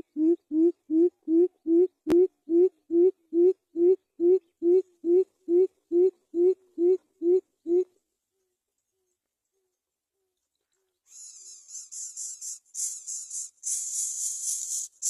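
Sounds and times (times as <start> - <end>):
bird calling with deep hoots: 0.0 - 7.9.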